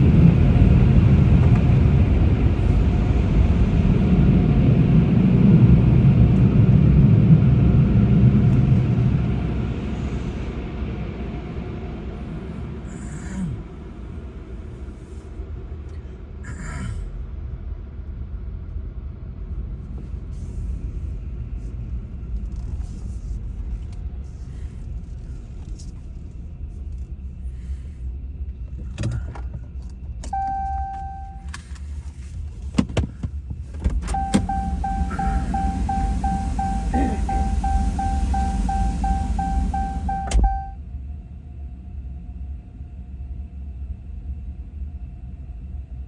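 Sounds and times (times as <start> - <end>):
car engine running: 28.6 - 32.8, 33.5 - 40.8
car warning chime beeping: 30.3 - 31.5, 34.0 - 40.8.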